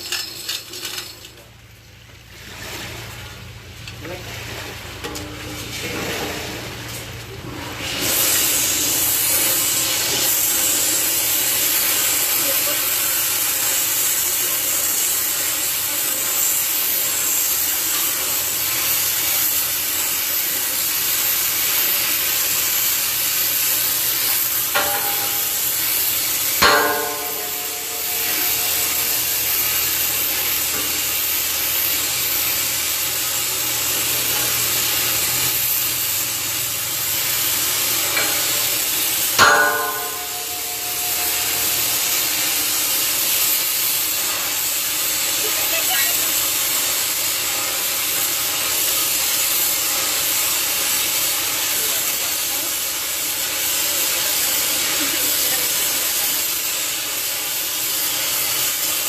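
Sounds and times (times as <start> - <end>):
steady hiss: 8.0 - 59.0
hammer blows on metal: 24.6 - 31.2, 39.4 - 43.0.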